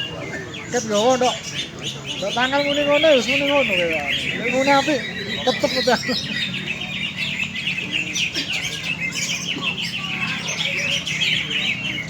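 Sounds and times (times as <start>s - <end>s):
caged birds singing: 0.0s - 12.0s.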